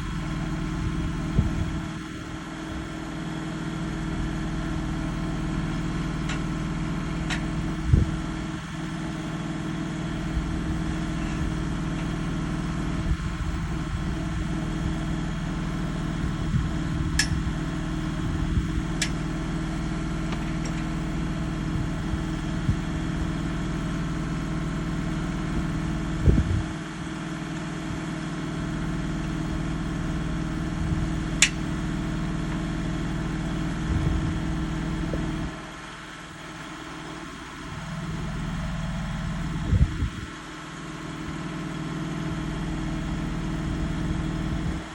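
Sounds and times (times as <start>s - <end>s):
engine idling: 0.0s - 44.9s
sharp clicks and knocks: 7.2s - 7.5s, 31.4s - 31.6s.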